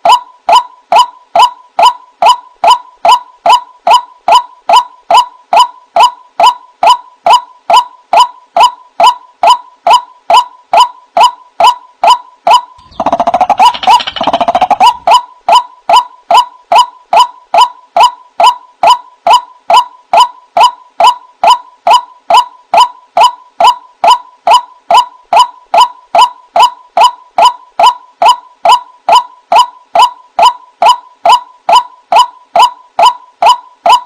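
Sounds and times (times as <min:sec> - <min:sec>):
waterhen calls: 0:12.8 - 0:16.0
burst of overlapping bird calls: 0:12.8 - 0:16.1.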